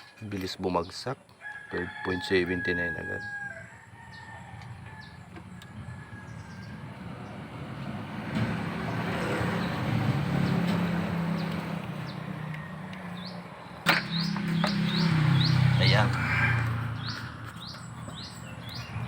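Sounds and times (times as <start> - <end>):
birds chirping: 0.0 - 19.0
vehicle engine running: 6.4 - 19.0.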